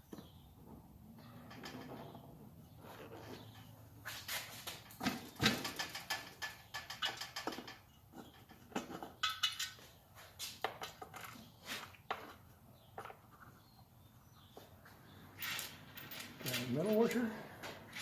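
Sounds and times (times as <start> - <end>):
bolts and washers clinking: 4.7 - 9.9, 15.3 - 18.0.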